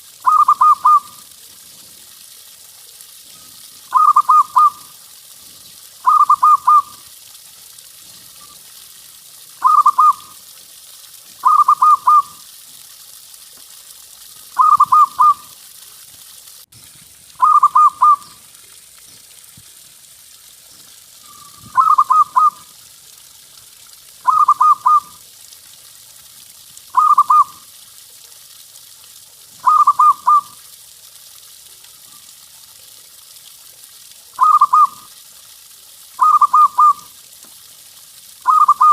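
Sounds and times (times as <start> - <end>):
dove cooing: 0.2 - 1.2, 3.9 - 4.8, 6.0 - 7.0, 9.6 - 10.2, 11.4 - 12.4, 14.6 - 15.4, 17.4 - 18.3, 21.4 - 22.6, 24.2 - 25.2, 27.0 - 27.5, 29.6 - 30.5, 34.4 - 35.0, 36.2 - 37.0, 38.5 - 38.9.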